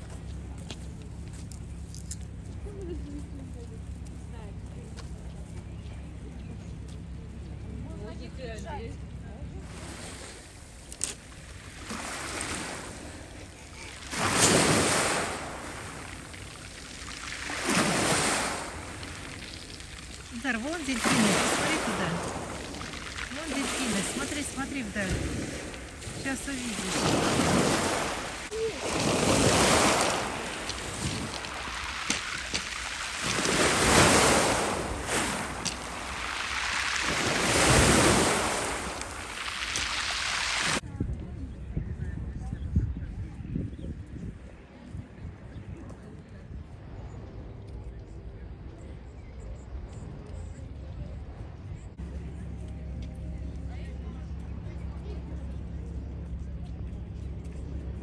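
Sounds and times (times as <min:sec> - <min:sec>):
sea waves breaking on shore: 0:09.6 - 0:40.8.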